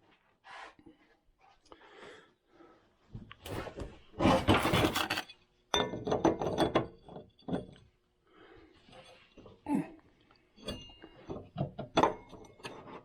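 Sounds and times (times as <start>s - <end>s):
metal tools rattling and scraping: 4.3s - 5.3s.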